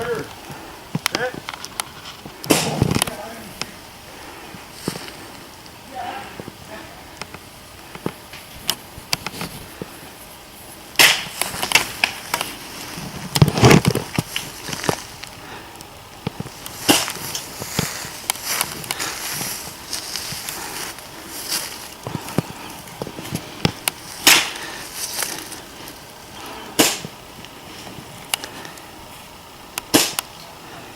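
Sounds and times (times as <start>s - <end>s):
rustling: 0.0s - 30.5s
sharp snaps and pops: 11.0s - 12.5s, 29.8s - 30.5s.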